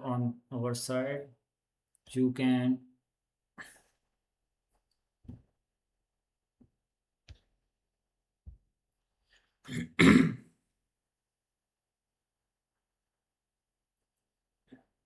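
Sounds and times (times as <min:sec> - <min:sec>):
man clearing his throat: 0:09.7 - 0:10.5.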